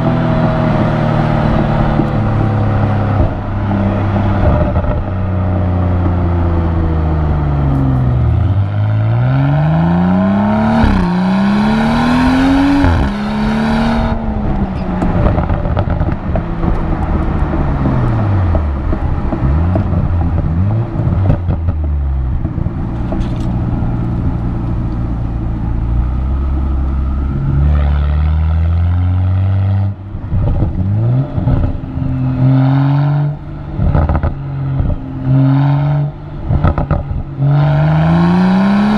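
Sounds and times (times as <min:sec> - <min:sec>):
car engine revving hard: 0:08.6 - 0:14.6, 0:35.3 - 0:38.9.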